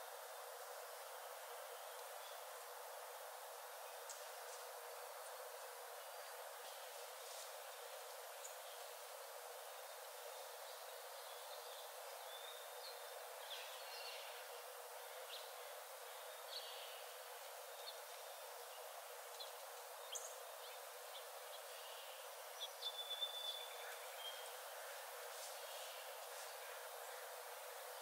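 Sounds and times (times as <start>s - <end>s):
soft hiss: 0.0s - 28.0s
songbirds chirping and whistling: 22.6s - 24.5s.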